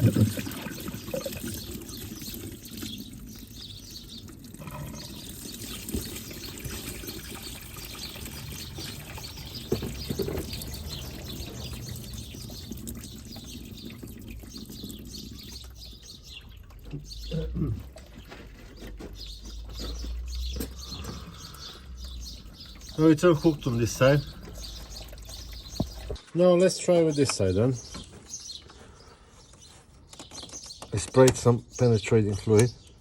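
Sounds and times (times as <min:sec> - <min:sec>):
coolant pouring from hose: 0:00.0 - 0:26.2.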